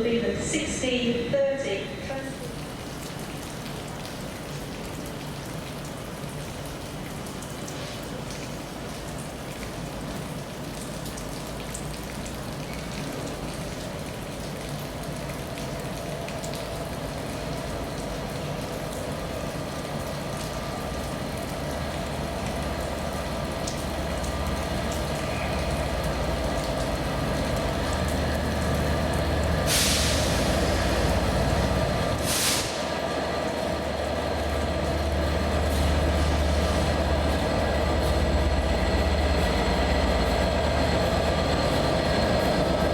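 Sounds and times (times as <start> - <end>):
train engine rumble: 12.4 - 42.9
air brake hisses: 29.7 - 30.9, 32.2 - 32.8.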